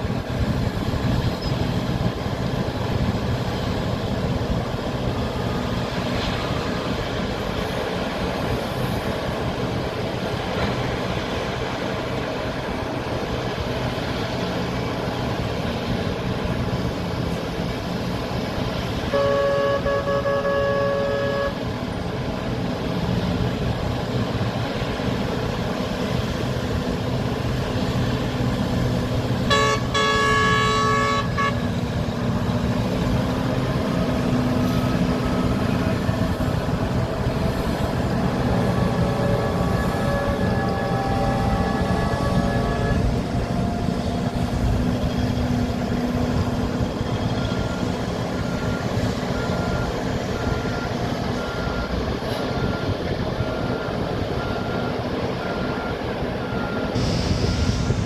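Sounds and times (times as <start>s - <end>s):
heavy diesel machinery drone: 0.0s - 58.0s
horn blasts: 19.0s - 21.7s, 29.4s - 31.8s.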